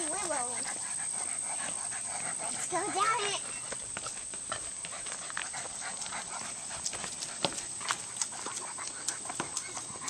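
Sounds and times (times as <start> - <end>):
footsteps on wobbly footbridge: 2.7 - 10.0.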